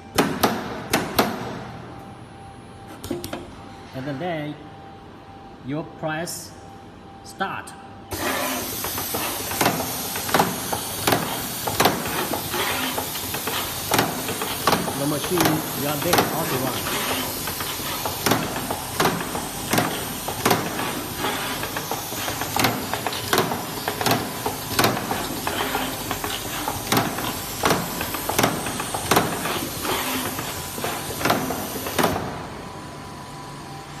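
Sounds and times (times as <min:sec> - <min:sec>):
spot welding machine clicks: 0:08.1 - 0:32.3.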